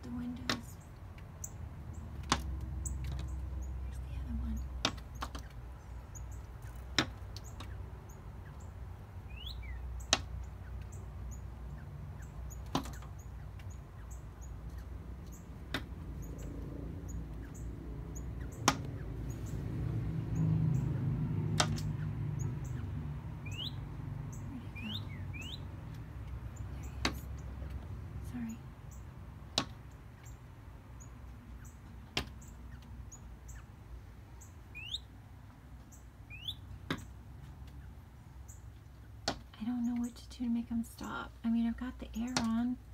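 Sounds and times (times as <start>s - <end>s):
small birds chirping: 0.0s - 42.9s
bird knocking on window glass: 12.6s - 13.2s, 29.5s - 29.9s.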